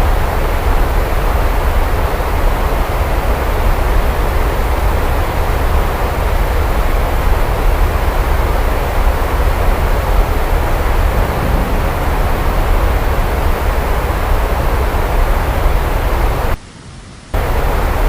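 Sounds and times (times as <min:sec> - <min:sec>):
heavy rain hiss: 0:00.0 - 0:18.0
deep low rumble: 0:09.3 - 0:16.6.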